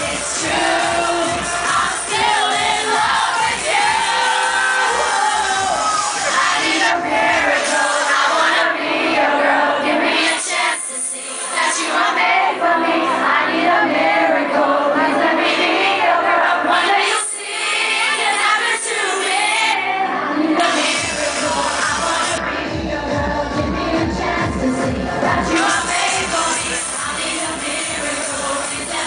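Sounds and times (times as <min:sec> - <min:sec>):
eurodance music with sung vocals: 0:00.0 - 0:29.0.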